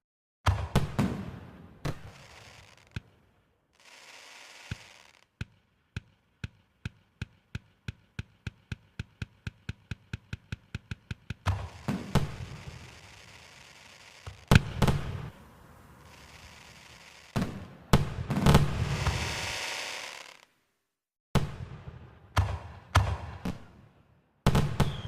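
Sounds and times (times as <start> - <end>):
firework cracks: 0.5 - 7.5, 11.4 - 20.6
firework booming bursts: 11.5 - 15.4.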